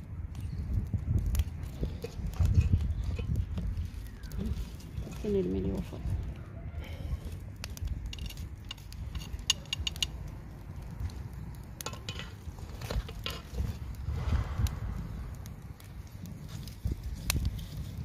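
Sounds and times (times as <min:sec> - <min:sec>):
steady low rumble: 0:00.0 - 0:18.0
metal clinking and knocking: 0:11.8 - 0:13.5.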